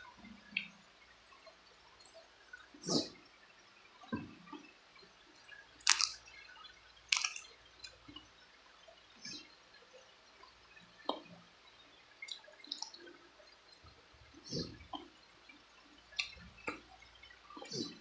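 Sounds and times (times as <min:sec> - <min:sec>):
quiet chewing: 0:05.5 - 0:06.5, 0:07.1 - 0:08.3, 0:15.8 - 0:18.0
wet mouth smacks and sucks: 0:05.8 - 0:06.2, 0:07.1 - 0:07.5.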